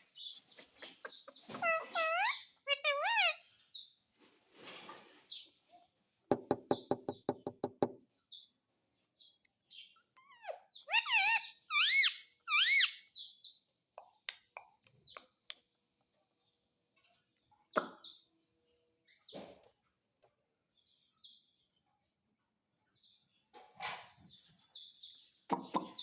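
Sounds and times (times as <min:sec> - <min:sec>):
parrot calls sweeping in pitch: 0:01.6 - 0:03.4, 0:10.9 - 0:13.0
parrot rattling chatter: 0:01.6 - 0:03.4, 0:10.9 - 0:13.0.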